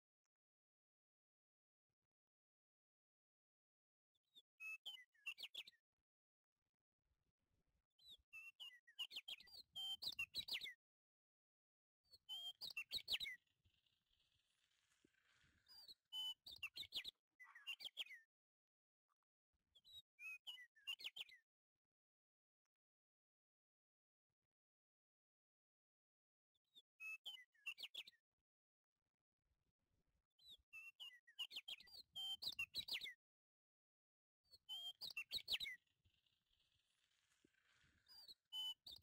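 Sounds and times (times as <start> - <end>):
bird chirping: 15.6 - 18.2, 34.6 - 39.0.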